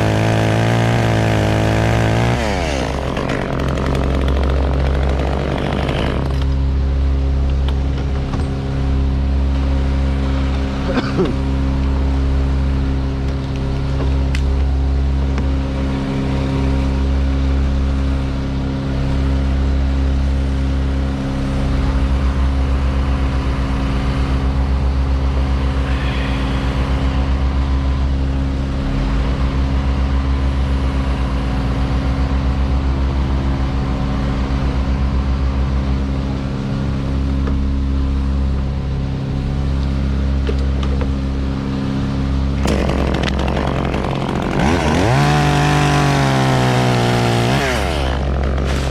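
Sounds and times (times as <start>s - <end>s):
chainsaw revving: 0.0s - 6.6s, 42.6s - 48.9s
heavy engine running: 0.0s - 48.9s.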